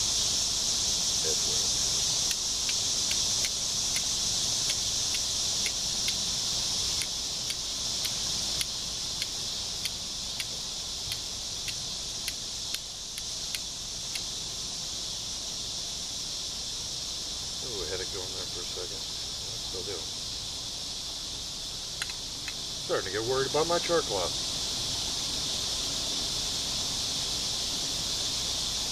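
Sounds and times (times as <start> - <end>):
insects buzzing: 0.0 - 28.9
flint striking steel clicks: 2.2 - 6.2, 7.0 - 14.3, 22.0 - 22.6.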